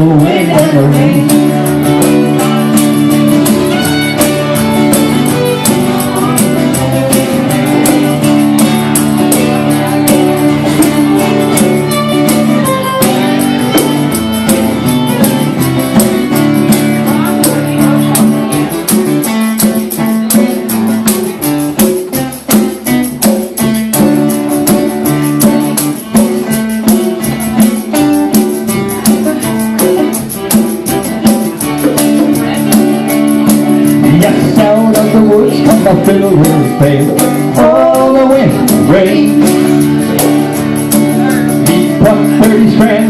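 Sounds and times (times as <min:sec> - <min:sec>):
strummed guitar: 0:00.0 - 0:43.0
fiddle melody: 0:01.3 - 0:20.0.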